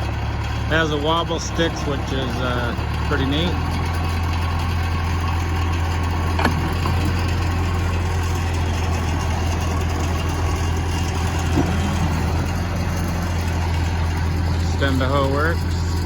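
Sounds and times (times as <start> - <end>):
diesel engine running: 0.0 - 16.0
metal clank: 6.3 - 14.8.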